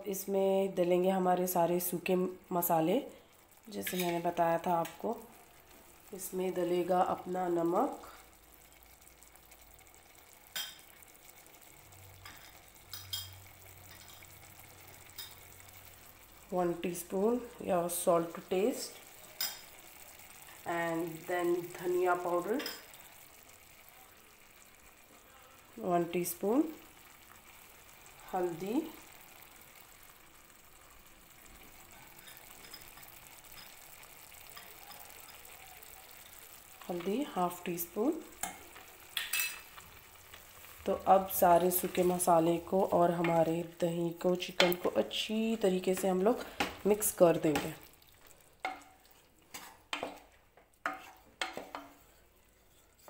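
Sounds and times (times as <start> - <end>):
chicken sizzling in a pan: 0.0 - 53.0.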